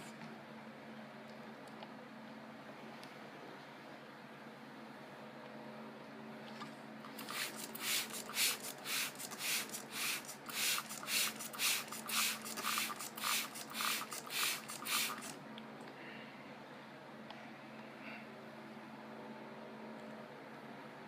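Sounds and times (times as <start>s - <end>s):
car wash brushes swishing: 7.1s - 15.4s.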